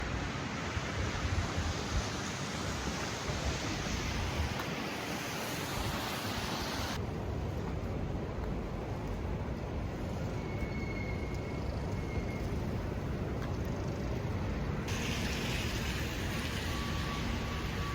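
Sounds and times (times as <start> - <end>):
blizzard wind rushing: 0.0 - 10.6.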